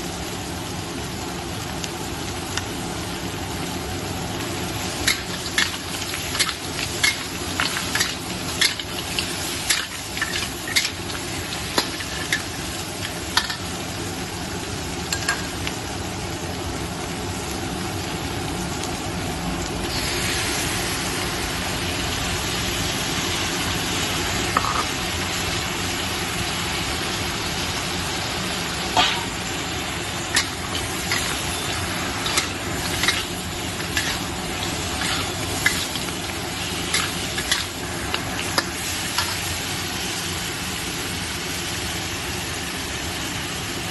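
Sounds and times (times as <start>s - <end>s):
crab sizzling in a pan: 0.0s - 43.9s
utensil scraping a pan: 30.3s - 36.2s.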